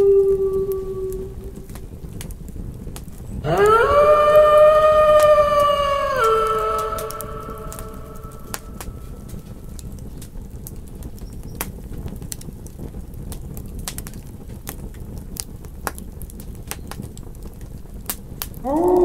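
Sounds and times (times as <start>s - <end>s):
wolf howl: 0.0s - 1.8s, 3.4s - 9.8s, 18.6s - 19.0s
campfire crackling and popping: 0.0s - 19.0s.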